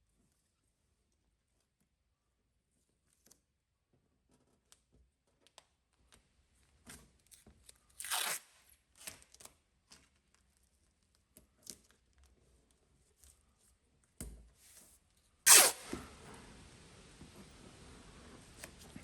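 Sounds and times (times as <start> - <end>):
masking tape ripping: 8.0 - 8.5, 15.5 - 16.0.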